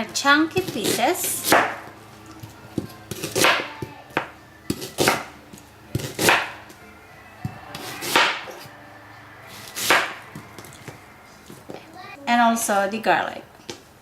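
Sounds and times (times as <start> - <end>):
knife chopping onion on board: 6.0 - 6.5.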